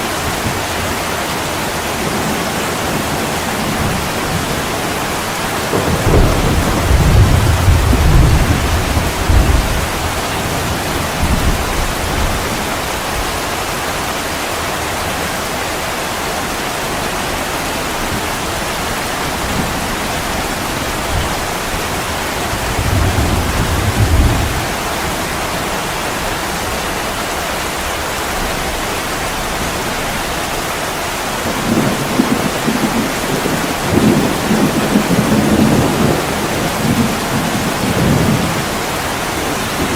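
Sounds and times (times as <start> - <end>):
heavy rain on a window: 0.0 - 39.9
thunder rumbling: 1.6 - 13.4, 17.9 - 26.8, 31.4 - 39.9.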